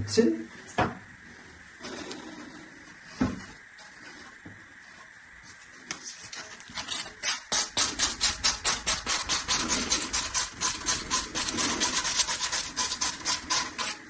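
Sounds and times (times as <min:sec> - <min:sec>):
sandpaper rubbing plastic pipe: 0:03.8 - 0:14.0.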